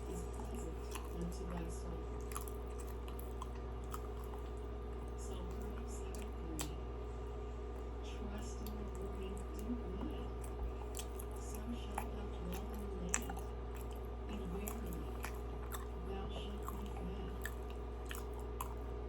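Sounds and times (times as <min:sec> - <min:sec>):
close-up chewing: 0:00.0 - 0:19.0
steady low hum: 0:00.0 - 0:19.0
small mouth clicks: 0:10.4 - 0:16.0.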